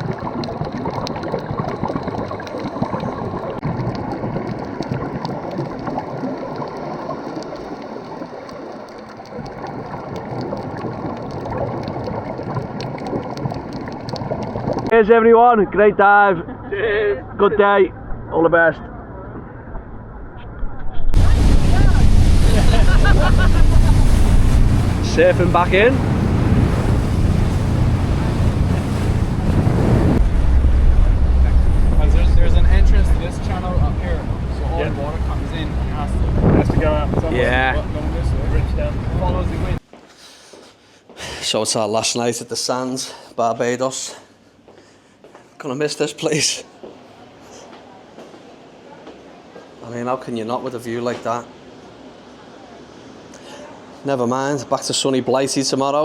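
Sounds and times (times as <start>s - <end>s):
water rushing: 0.0s - 14.9s, 21.2s - 39.8s
wind buffeting microphone: 21.1s - 39.8s
boat motor: 21.2s - 39.8s.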